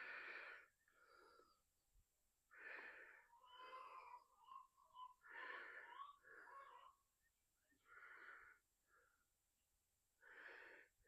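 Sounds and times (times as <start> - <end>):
man breathing heavily: 0.0 - 1.6, 2.5 - 3.3, 10.2 - 11.0.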